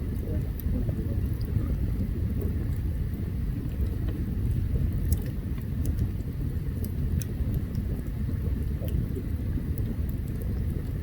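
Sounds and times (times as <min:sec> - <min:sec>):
campfire crackling and popping: 0:00.0 - 0:11.0
low rumble of campfire: 0:00.0 - 0:11.0.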